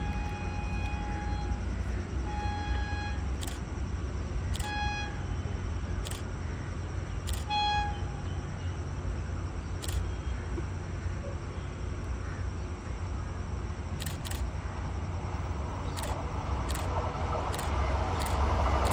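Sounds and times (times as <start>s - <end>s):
high-pitched horn toots: 0.0s - 1.7s, 2.3s - 3.5s, 4.6s - 5.5s
sharp clicks: 3.4s - 3.6s, 4.5s - 4.7s, 6.0s - 6.3s, 7.2s - 7.5s, 9.8s - 10.1s, 14.0s - 14.5s, 15.8s - 18.9s.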